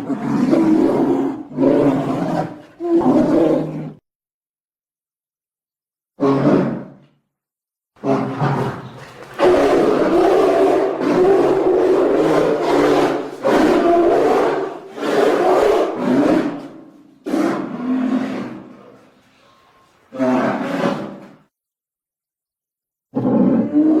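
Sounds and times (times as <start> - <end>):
creature roars: 0.0 - 4.0, 8.0 - 18.8, 23.1 - 24.0.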